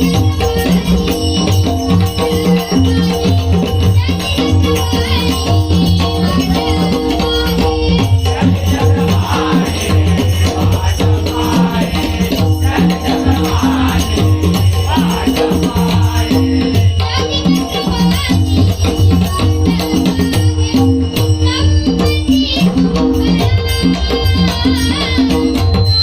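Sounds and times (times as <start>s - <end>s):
rattling percussion: 0.0s - 26.0s
devotional music: 7.4s - 19.4s.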